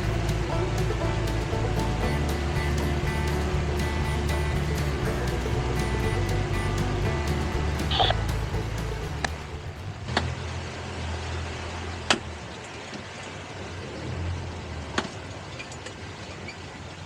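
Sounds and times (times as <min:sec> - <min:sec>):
boat engine running: 0:00.0 - 0:10.6.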